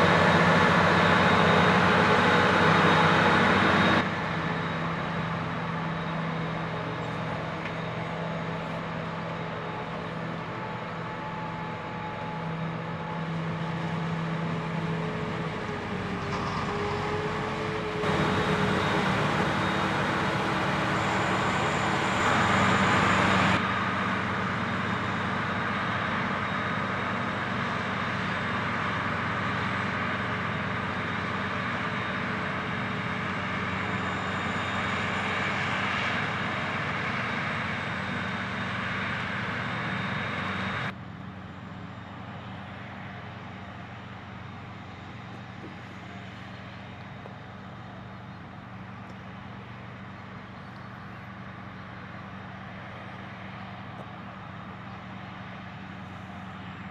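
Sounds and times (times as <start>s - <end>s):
heavy machinery engine hum: 0.0s - 56.9s.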